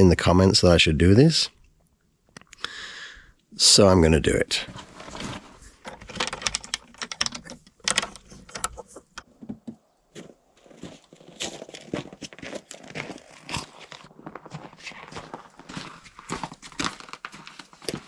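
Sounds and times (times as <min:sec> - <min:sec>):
crinkling and rustling handling noise: 0:04.2 - 0:18.0
sharp clicks and knocks: 0:04.7 - 0:09.8.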